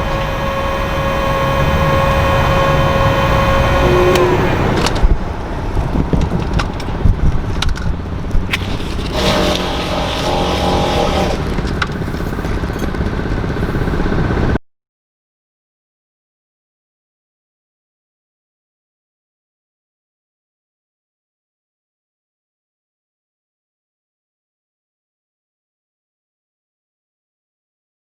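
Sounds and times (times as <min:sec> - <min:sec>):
heat gun blower whining: 0:00.0 - 0:07.5, 0:08.1 - 0:14.6
handling clicks and knocks: 0:04.8 - 0:09.7, 0:11.3 - 0:13.9.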